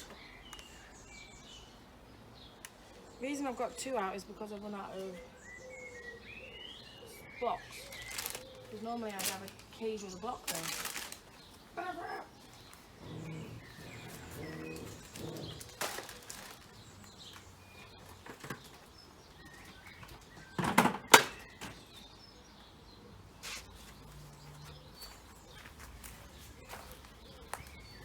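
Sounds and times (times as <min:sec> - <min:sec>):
birds chirping faintly: 0:00.0 - 0:28.0
bird feeders knocking and rustling: 0:13.6 - 0:22.2.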